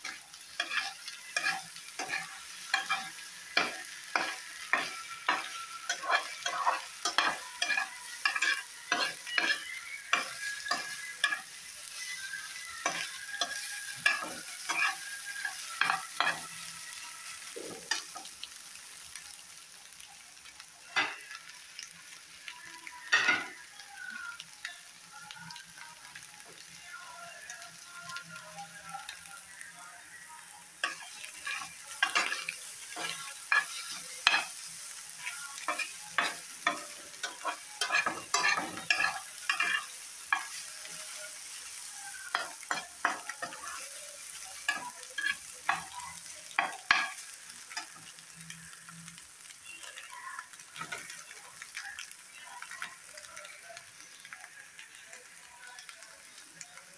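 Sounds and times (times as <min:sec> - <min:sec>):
eggs sizzling in a pan: 0:00.0 - 0:56.9
spatula scraping a pan: 0:00.1 - 0:12.1, 0:12.8 - 0:16.5, 0:30.9 - 0:34.6, 0:35.6 - 0:40.6.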